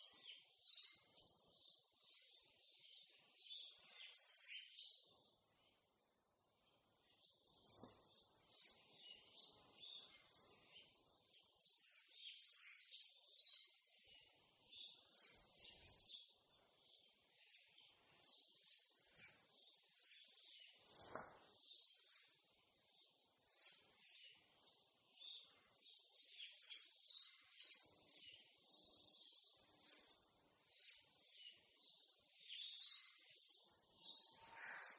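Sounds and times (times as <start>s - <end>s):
songbirds chirping and singing: 0.0s - 34.9s.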